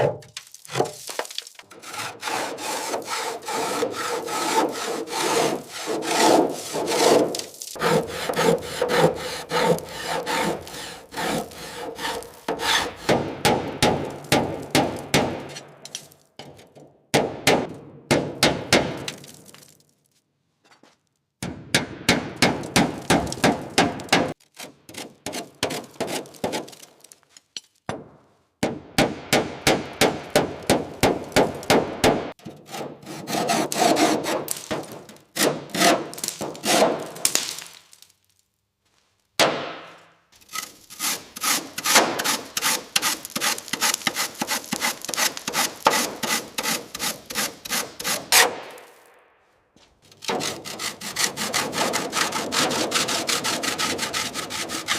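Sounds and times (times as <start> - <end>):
hand tool scraping metal: 0.7 - 13.2, 32.6 - 37.2, 40.4 - 48.6, 50.1 - 54.9.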